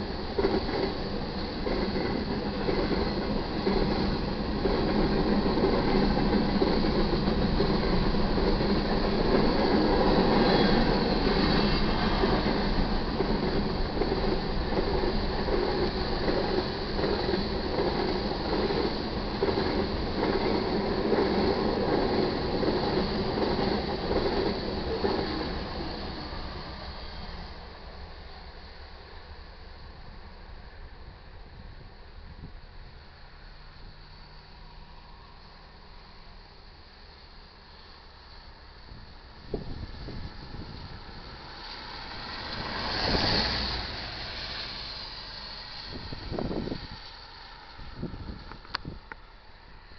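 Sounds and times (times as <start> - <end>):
freight cars rumbling past: 39.4 - 49.1.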